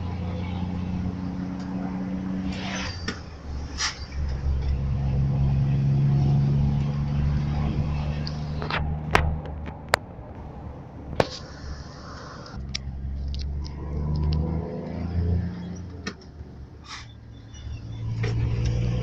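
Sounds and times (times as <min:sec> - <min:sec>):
bus engine revving: 0:00.0 - 0:19.0.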